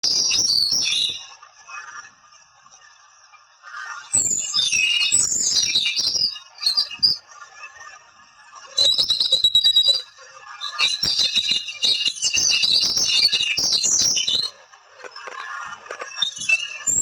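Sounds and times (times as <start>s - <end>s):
birds chirping and whistling: 0.0s - 1.4s, 4.0s - 7.9s, 8.7s - 17.0s
faint background bird chorus: 0.0s - 17.0s.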